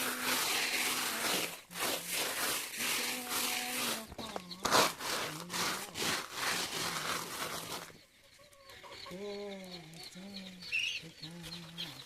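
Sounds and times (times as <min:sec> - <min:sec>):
rough rubbing strokes: 0:00.0 - 0:08.0.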